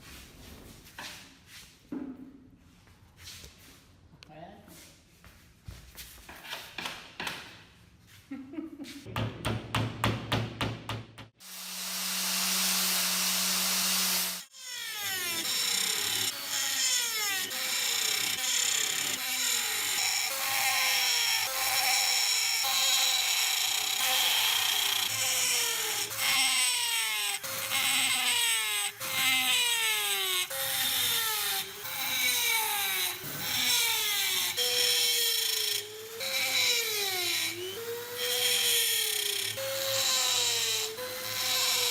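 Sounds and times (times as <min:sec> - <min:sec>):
power tool hum: 0:11.4 - 0:41.9.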